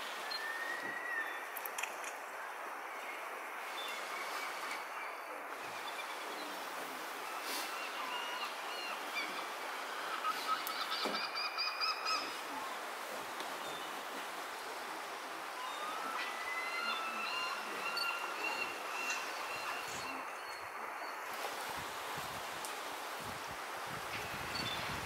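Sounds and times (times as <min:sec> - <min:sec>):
birds calling high-pitched: 0:15.6 - 0:21.2.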